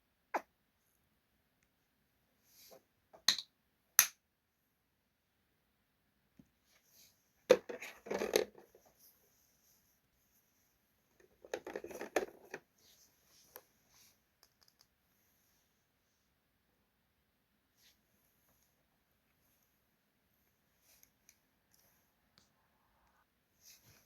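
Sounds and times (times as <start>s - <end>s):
clatter and rustling: 11.3s - 12.6s.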